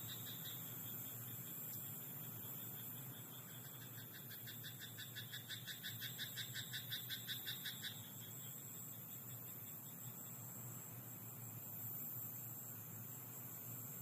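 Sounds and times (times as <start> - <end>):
frog croaking: 0.0 - 0.6, 3.4 - 8.5
steady high hiss: 0.0 - 14.0.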